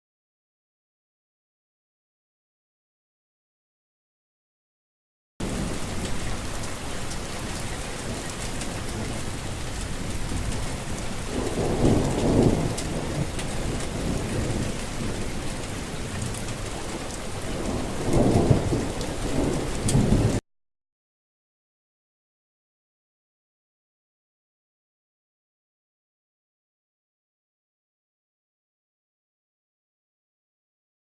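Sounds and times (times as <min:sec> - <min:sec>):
steady rain: 0:05.4 - 0:20.4
thunder rumbling: 0:05.4 - 0:20.4.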